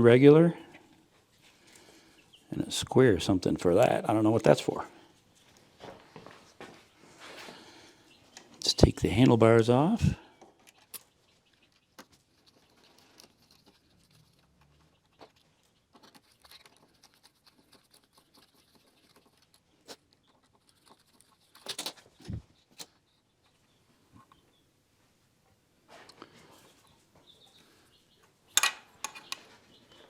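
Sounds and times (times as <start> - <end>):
hands tapping and scraping on handlebars: 28.6 - 29.5.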